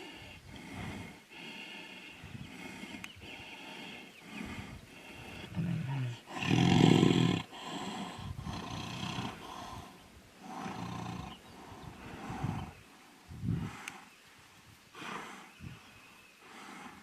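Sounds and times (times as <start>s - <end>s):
tigers roaring and growling: 4.3s - 12.8s.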